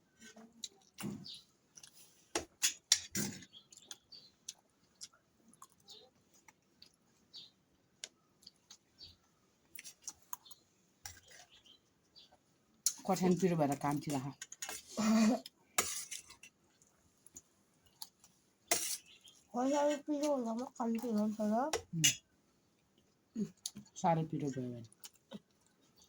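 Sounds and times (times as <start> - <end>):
chewing and mouth sounds: 3.6 - 8.9, 24.9 - 26.0.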